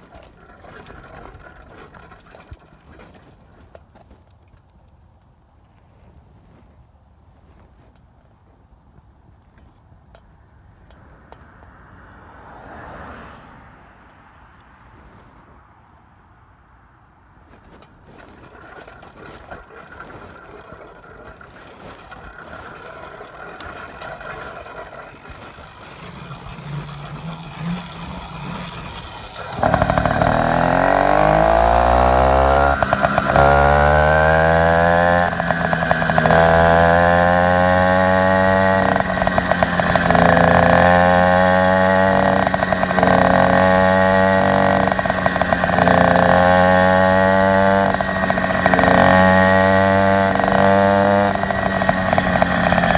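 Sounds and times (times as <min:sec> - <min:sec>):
small motorbike engine revving: 0:00.0 - 0:03.8, 0:17.6 - 0:52.9.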